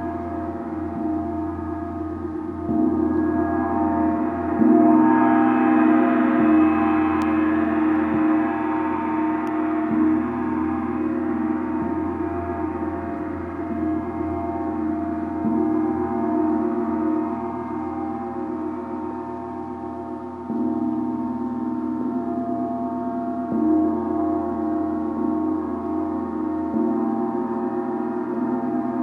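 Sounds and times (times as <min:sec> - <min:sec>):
gong ringing: 0:00.0 - 0:19.4.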